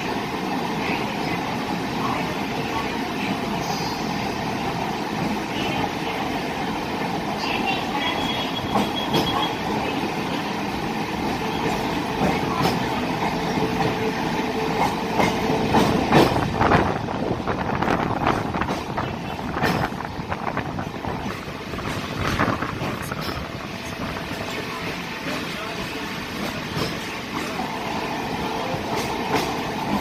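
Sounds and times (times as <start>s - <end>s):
train wheels rumbling on rail: 0.0s - 30.0s
rail joint clicks and knocks: 8.0s - 9.6s, 11.3s - 24.6s, 26.3s - 27.6s, 28.8s - 30.0s.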